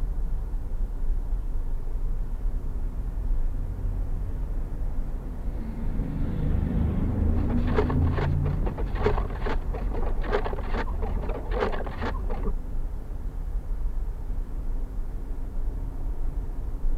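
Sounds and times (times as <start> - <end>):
car cabin road rumble: 6.9 - 12.6.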